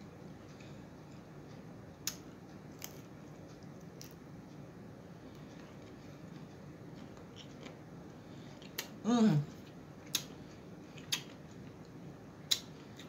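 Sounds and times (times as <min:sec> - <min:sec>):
person chewing food: 0:02.0 - 0:04.2, 0:05.3 - 0:07.8, 0:08.4 - 0:09.0, 0:09.6 - 0:13.0
person humming mmm: 0:09.0 - 0:09.6.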